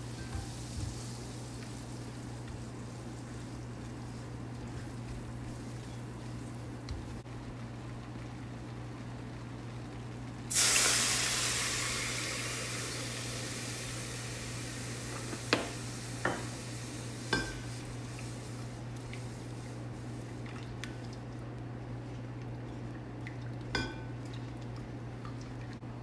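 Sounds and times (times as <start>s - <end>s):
food sizzling in hot oil: 0.0s - 6.1s, 10.5s - 19.8s.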